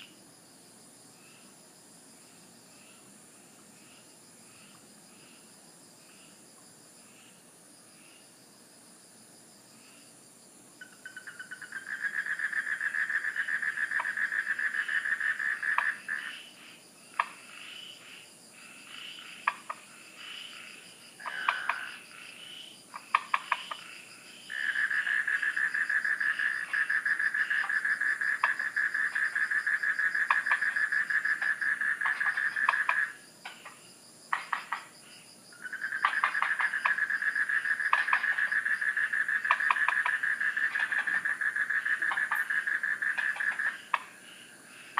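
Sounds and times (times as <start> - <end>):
night insects droning: 0.0 - 44.9
frog calling in pulsing trills: 10.8 - 16.5, 18.8 - 34.9, 35.5 - 44.2.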